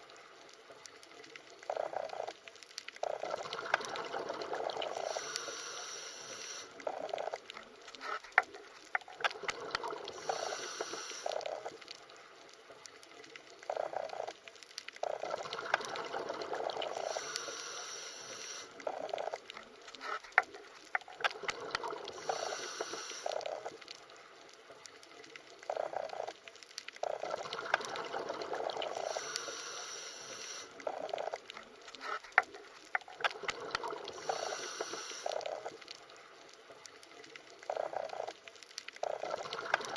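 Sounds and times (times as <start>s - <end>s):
underwater bubbling and gurgling: 0.0s - 39.9s
clicks and pops: 0.2s - 5.5s, 6.8s - 17.5s, 18.8s - 29.6s, 30.8s - 39.9s.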